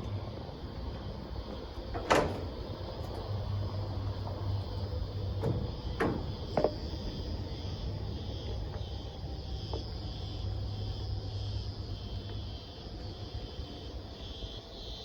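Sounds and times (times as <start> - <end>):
steady low hum: 0.0 - 14.9
pulsing insect chorus: 0.0 - 15.0
short knocks: 1.0 - 7.7.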